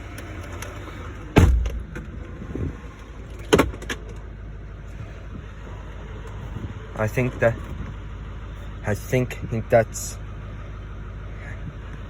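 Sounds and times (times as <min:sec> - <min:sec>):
diesel truck engine idling: 0:00.0 - 0:12.0
sharp clunk: 0:01.4 - 0:02.2.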